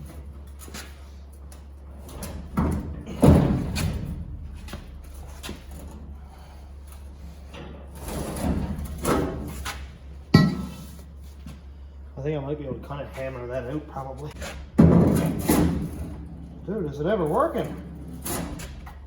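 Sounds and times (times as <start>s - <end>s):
sheet metal thuds and clunks: 2.0s - 6.0s, 14.5s - 16.6s.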